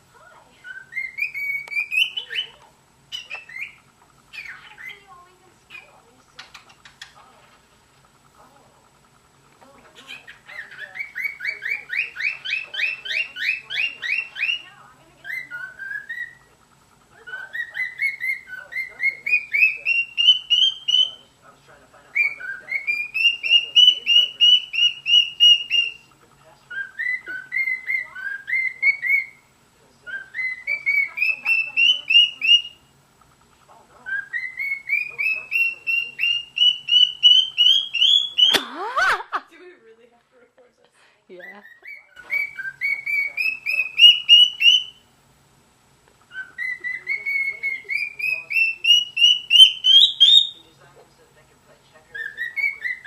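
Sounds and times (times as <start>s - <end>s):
cockatiel whistling: 0.6s - 5.0s, 10.0s - 16.5s, 17.2s - 21.3s, 22.1s - 26.1s, 26.7s - 29.5s, 30.1s - 32.9s, 34.0s - 38.6s, 41.4s - 45.0s, 46.3s - 50.6s, 52.1s - 53.0s.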